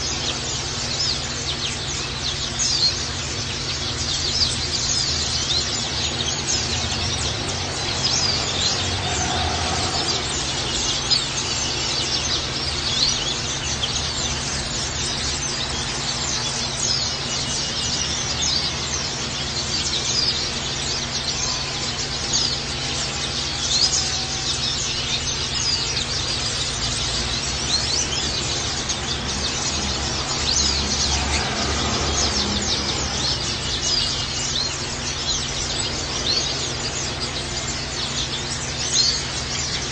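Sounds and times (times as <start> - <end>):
birds twittering high chirps: 0.0 - 39.9.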